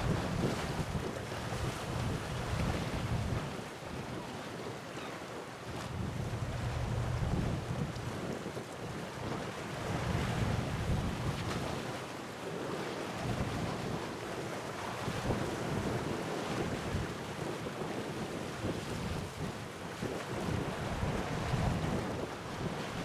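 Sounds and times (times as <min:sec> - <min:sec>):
wind buffeting microphone: 0:00.0 - 0:03.6, 0:05.7 - 0:08.6, 0:20.3 - 0:23.0.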